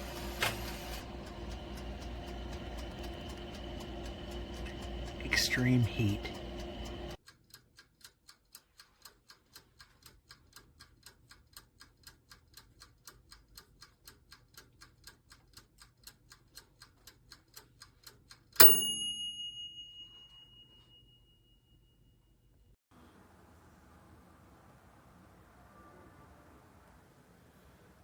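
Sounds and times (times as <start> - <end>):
wind-up timer ticking: 0.0 - 19.2
timer bell ringing: 1.1 - 7.2, 18.6 - 22.0.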